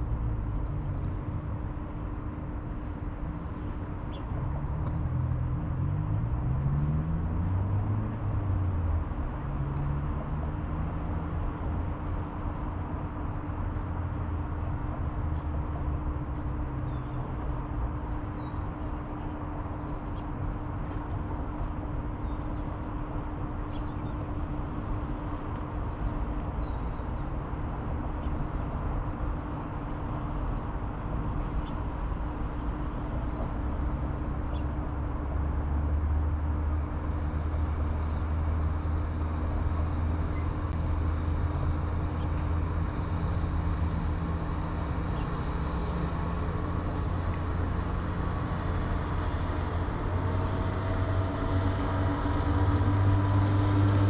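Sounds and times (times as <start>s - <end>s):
constant hum: 0.0s - 54.0s
distant city traffic rumble: 0.0s - 54.0s
vehicle accelerating through gears: 42.5s - 54.0s.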